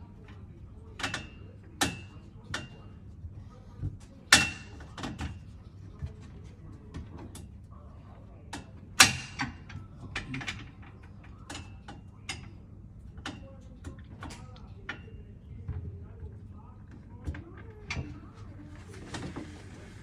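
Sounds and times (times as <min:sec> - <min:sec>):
bed frame parts clicking and knocking: 0:08.6 - 0:12.6.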